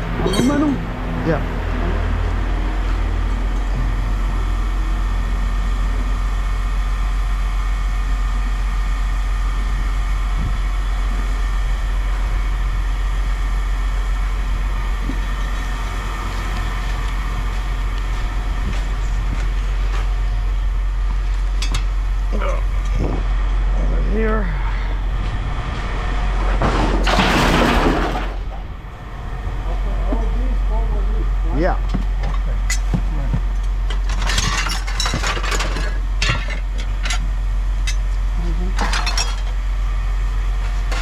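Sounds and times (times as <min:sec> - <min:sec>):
machinery rumbling: 0:00.0 - 0:41.0
light metallic clinks: 0:00.2 - 0:00.8.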